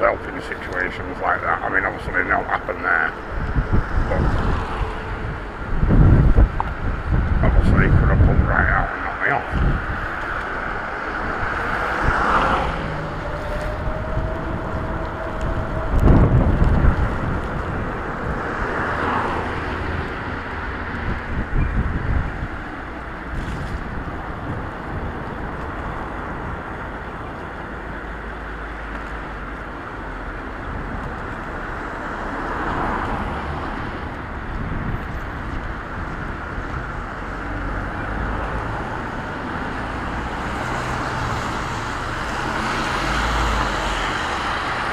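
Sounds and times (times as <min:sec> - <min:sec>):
tyre noise on wet road: 0:00.0 - 0:44.9
wind buffeting microphone: 0:00.0 - 0:44.9
low rumble: 0:01.6 - 0:18.8.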